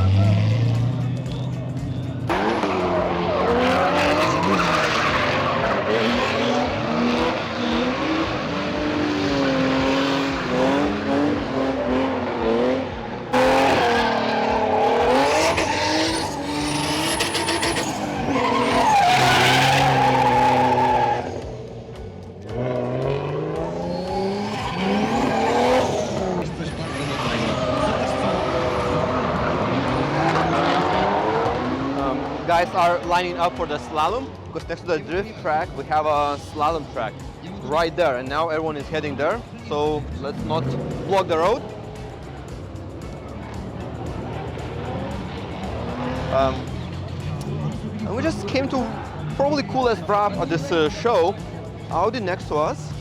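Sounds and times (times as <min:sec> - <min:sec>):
car engines revving: 0:00.0 - 0:53.0
tyres squealing on tarmac: 0:02.4 - 0:06.6, 0:13.4 - 0:21.5, 0:23.9 - 0:29.9.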